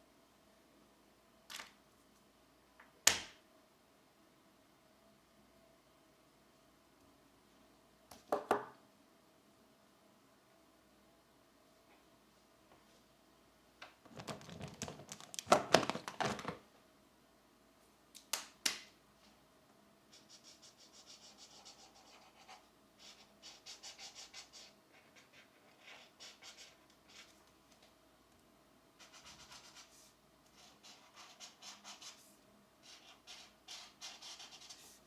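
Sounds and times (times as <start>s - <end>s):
pencil coloring strokes: 20.1s - 27.4s, 29.0s - 35.0s.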